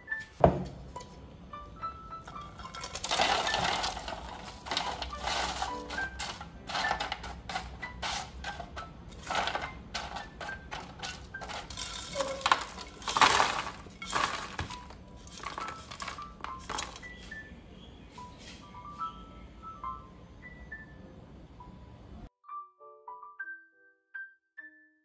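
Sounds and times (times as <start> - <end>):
soft waltz music: 0.0 - 25.0
kitchenware clinking: 2.3 - 17.3
food crunching: 2.6 - 8.5, 9.1 - 17.3.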